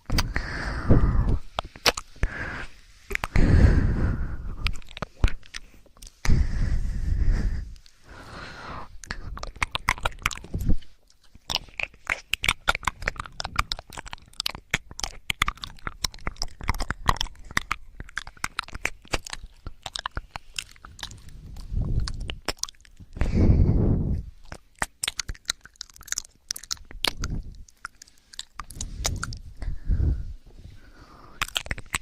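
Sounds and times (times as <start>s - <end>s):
wet clicking and crackling: 4.6s - 6.2s, 9.0s - 23.2s, 24.4s - 29.7s, 31.4s - 32.0s.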